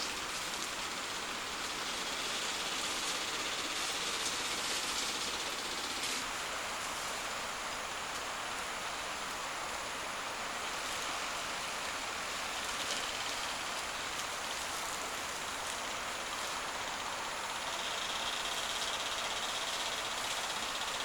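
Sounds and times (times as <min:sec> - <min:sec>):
steady rushing outdoor noise: 0:00.0 - 0:21.0.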